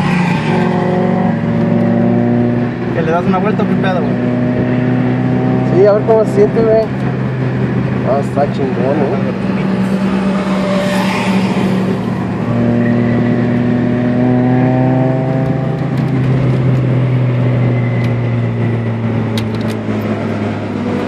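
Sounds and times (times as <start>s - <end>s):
car engine from inside cabin: 0.0s - 21.0s.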